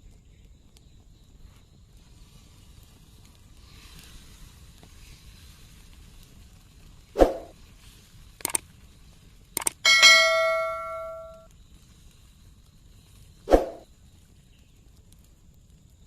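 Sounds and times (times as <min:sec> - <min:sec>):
bell-like ringing strike: 0:09.9 - 0:11.4.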